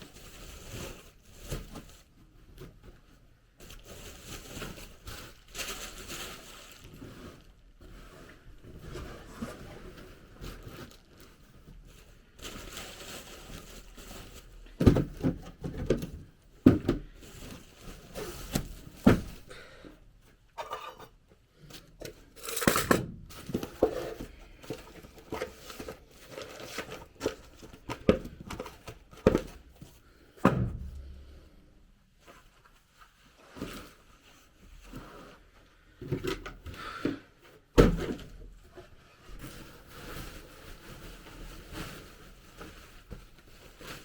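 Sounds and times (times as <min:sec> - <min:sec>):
rustling and crinkling: 0:00.0 - 0:44.0
knocks and thuds: 0:30.4 - 0:31.2.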